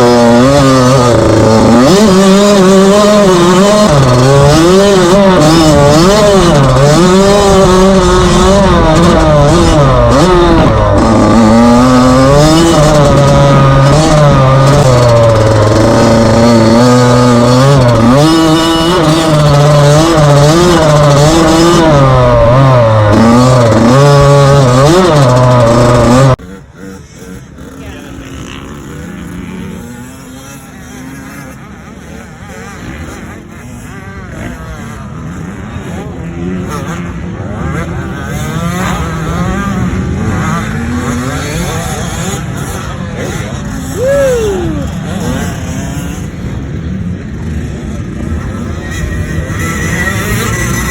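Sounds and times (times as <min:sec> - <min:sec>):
steady loud rumble: 0:00.0 - 0:32.4
dirt bike engine revving: 0:00.0 - 0:50.9.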